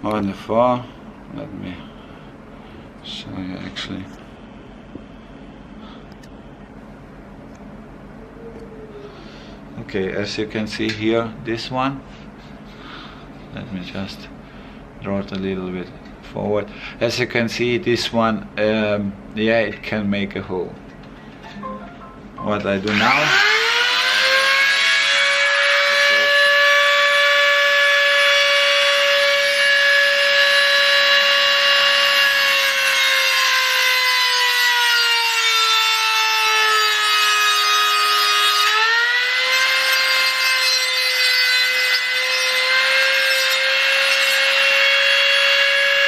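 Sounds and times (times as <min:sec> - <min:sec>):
rotary tool grinding metal: 0:36.5 - 0:46.0.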